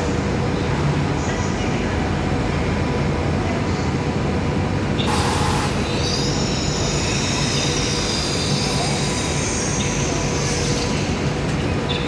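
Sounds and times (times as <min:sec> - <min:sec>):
train rumbling on rails: 0:00.0 - 0:12.0
wheel squeal: 0:05.1 - 0:12.0.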